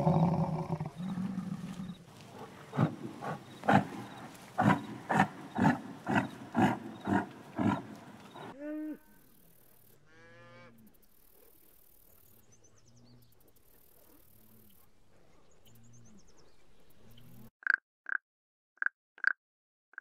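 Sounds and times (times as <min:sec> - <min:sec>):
frog calls: 0:00.0 - 0:08.6
cow mooing: 0:00.0 - 0:09.1
soft outdoor hiss: 0:00.0 - 0:17.5.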